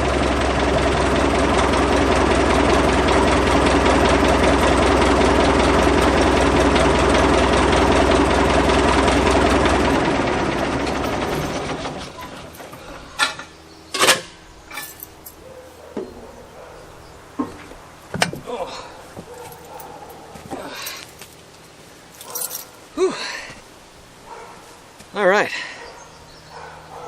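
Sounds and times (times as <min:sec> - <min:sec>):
diesel engine winding down: 0:00.0 - 0:15.5.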